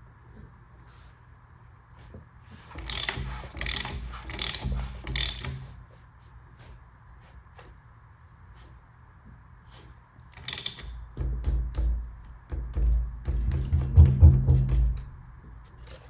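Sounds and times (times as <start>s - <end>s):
ratchet wrench rasping: 2.7s - 5.7s, 10.4s - 11.0s
tools clicking on metal: 2.7s - 5.8s, 10.3s - 11.1s.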